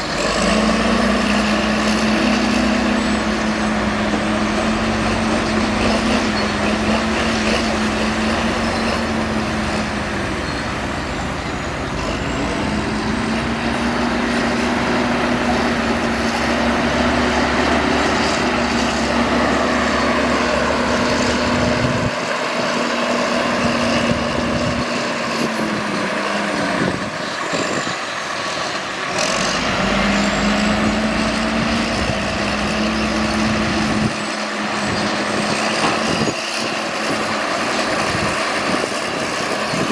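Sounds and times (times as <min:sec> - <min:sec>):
heavy diesel machinery engine: 0:00.0 - 0:39.9.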